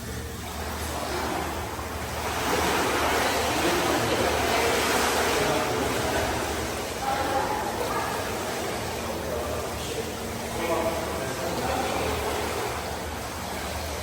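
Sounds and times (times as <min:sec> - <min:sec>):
shower water running: 0:00.0 - 0:14.0.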